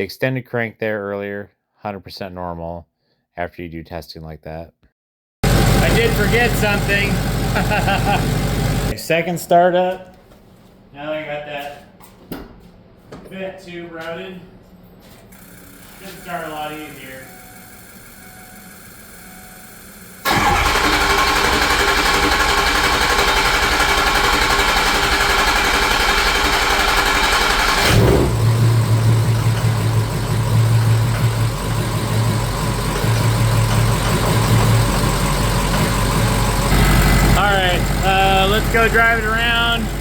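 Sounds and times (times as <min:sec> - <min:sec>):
diesel engine cranking on starter: 0:05.4 - 0:08.9, 0:20.2 - 0:40.0
diesel engine idling: 0:05.4 - 0:09.0, 0:20.2 - 0:40.0.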